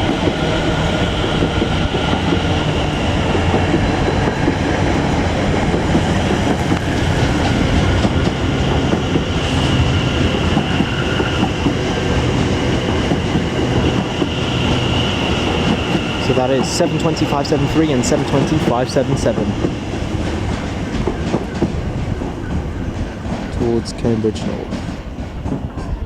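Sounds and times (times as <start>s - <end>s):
train wheels on rails: 0.0s - 26.0s
high steady whine: 6.6s - 20.2s.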